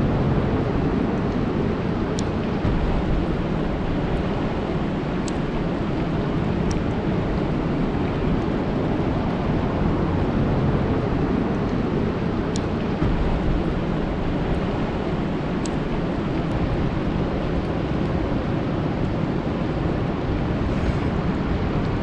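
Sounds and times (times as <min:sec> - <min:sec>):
sharp ticks: 0:02.2 - 0:06.9
rain falling on water: 0:02.4 - 0:20.1.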